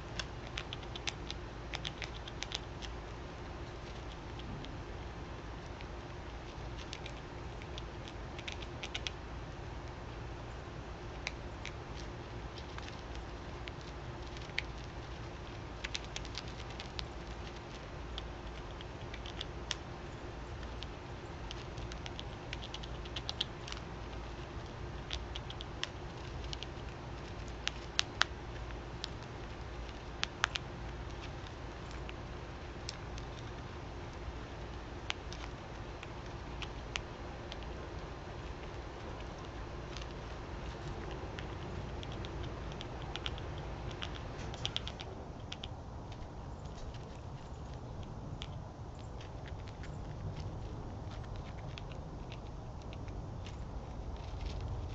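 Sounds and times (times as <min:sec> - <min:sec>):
birds and squirrels pecking seed: 0:00.0 - 0:54.9
steady low hum: 0:00.0 - 0:54.9
low rumble: 0:23.2 - 0:54.9.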